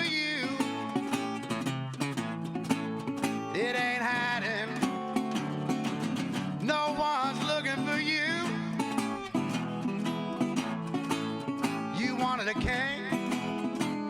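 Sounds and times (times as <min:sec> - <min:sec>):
man singing: 0:00.0 - 0:01.5, 0:03.0 - 0:14.0
fingerpicked resonator guitar: 0:00.0 - 0:14.0.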